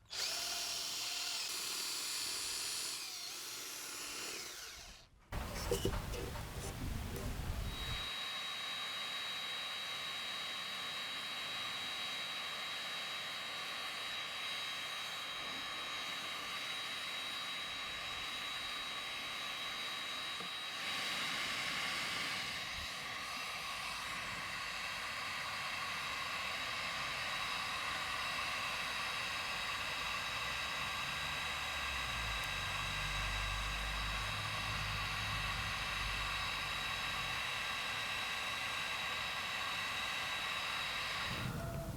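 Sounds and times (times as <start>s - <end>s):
high-speed motor whining: 4.4s - 8.1s, 29.6s - 37.4s, 40.5s - 41.9s.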